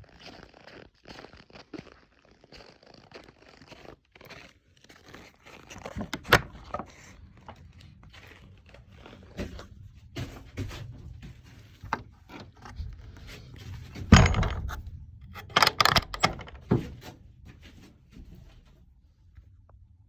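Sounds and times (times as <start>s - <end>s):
knocks and clinks: 14.1s - 16.9s.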